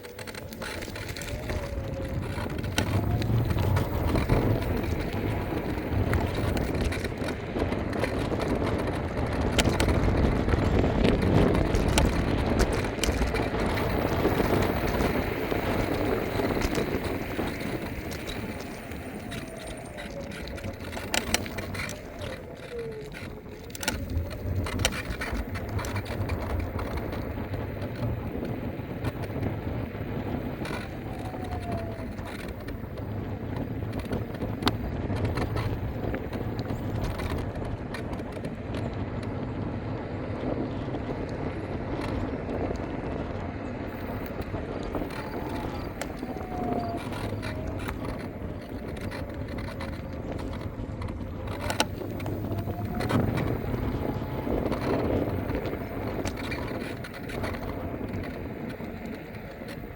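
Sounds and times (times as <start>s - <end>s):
clicks and rattles from bumps: 0.0s - 59.9s
faint motor whine: 0.0s - 59.9s
scooter wheels rolling on pavement: 0.0s - 59.9s.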